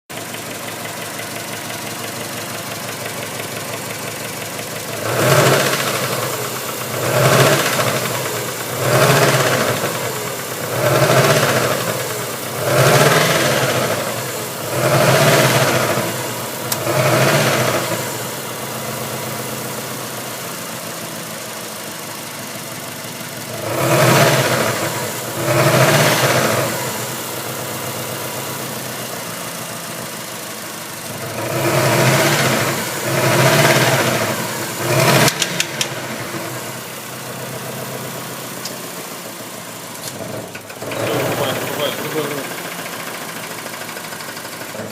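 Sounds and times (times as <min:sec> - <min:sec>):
engine knock: 0:00.1 - 0:25.0, 0:31.1 - 0:36.2, 0:40.4 - 0:44.9
car engine idling and revving: 0:00.1 - 0:44.9.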